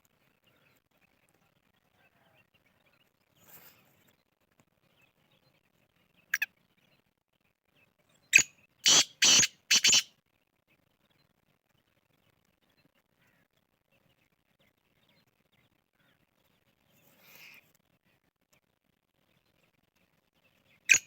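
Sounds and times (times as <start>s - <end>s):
francolin calling: 8.8s - 10.1s.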